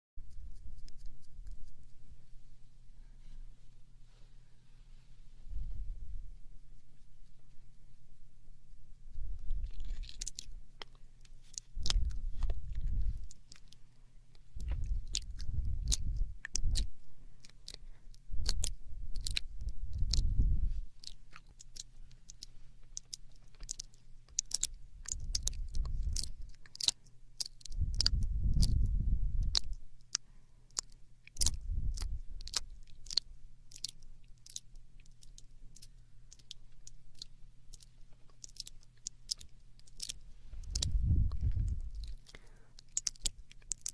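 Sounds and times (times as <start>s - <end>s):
low rumbling: 0.4s - 11.0s, 11.6s - 13.8s, 14.5s - 21.0s, 27.7s - 29.8s, 40.1s - 42.4s
wet mouth clicks and lip smacks: 9.6s - 17.8s, 18.4s - 20.3s, 21.0s - 43.9s.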